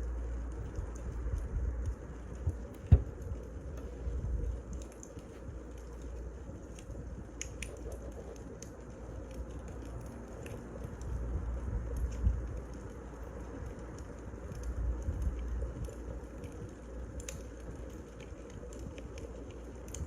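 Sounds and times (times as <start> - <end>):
wood fire crackling: 0.0 - 20.0
sharp dull thump: 2.9 - 3.1.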